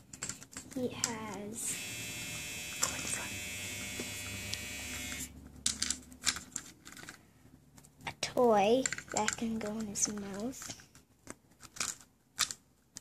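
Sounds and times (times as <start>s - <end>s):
small toy motor buzzing: 1.6s - 5.3s.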